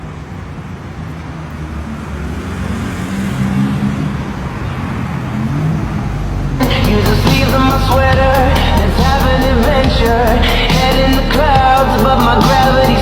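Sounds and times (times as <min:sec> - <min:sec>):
car engine running: 0:06.4 - 0:13.0
music: 0:06.6 - 0:13.0.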